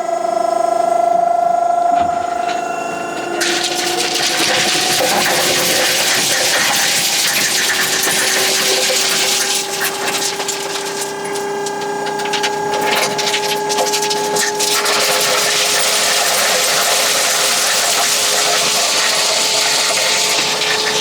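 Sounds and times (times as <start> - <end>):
steady whine rising in pitch: 0.0 - 3.4
vehicle engine and drivetrain: 0.0 - 21.0.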